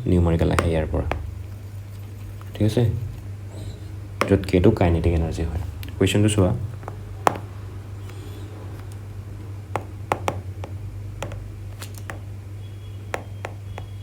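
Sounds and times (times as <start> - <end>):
steady low hum: 0.0 - 14.0
taps and clicks from writing: 0.5 - 1.4, 9.8 - 12.3, 13.1 - 14.0.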